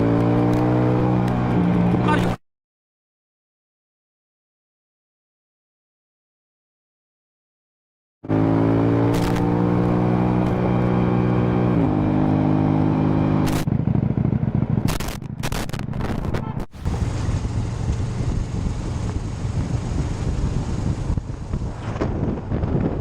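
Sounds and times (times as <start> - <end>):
wind and road noise: 0.0 - 2.4, 8.2 - 23.0
motorcycle engine running: 13.4 - 16.1, 16.7 - 23.0.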